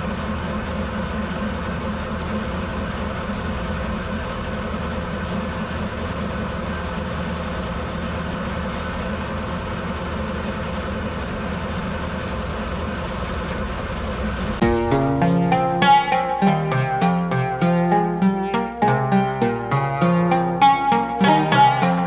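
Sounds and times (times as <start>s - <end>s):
tractor engine running steadily: 0.0s - 16.4s.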